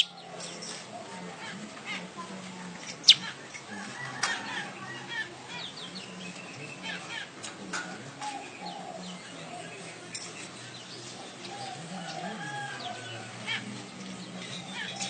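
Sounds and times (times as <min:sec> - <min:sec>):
bird singing chirps and ticks: 0:00.0 - 0:00.6.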